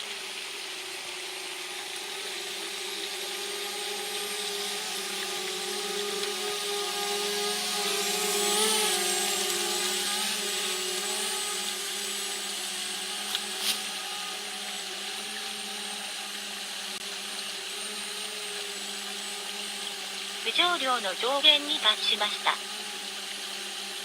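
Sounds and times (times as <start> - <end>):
drone propellers humming: 20.1 - 22.6.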